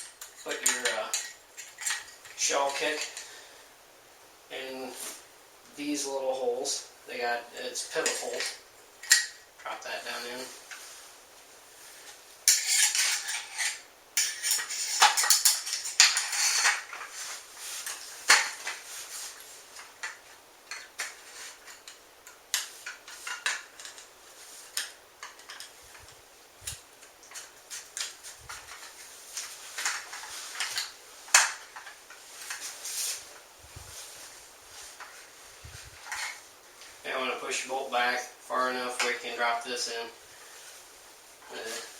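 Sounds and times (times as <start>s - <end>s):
steel gun parts clicking and scraping: 0.0s - 3.3s, 7.6s - 10.8s, 12.4s - 17.2s, 17.8s - 32.7s, 36.0s - 36.4s.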